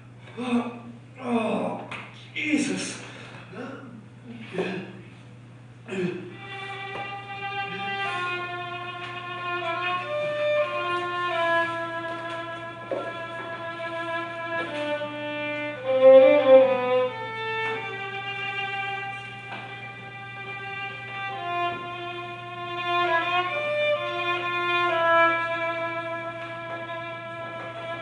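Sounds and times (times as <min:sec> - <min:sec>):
steady low hum: 0:00.0 - 0:28.0
slow violin melody: 0:06.4 - 0:28.0.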